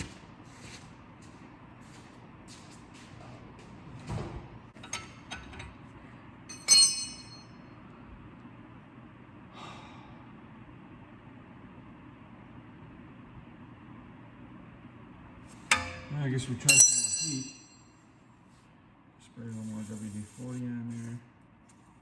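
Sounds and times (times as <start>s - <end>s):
metal tools knocking and clinking: 6.5s - 7.5s, 15.7s - 17.8s
loud ringing metallic clank: 6.5s - 7.6s, 15.7s - 17.9s.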